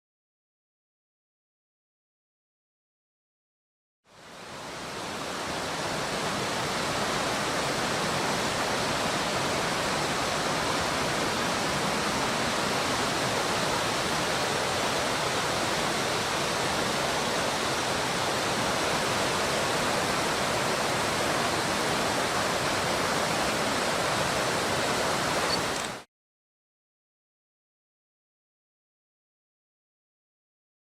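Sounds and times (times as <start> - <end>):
rushing water of stream rapids: 4.1 - 26.1.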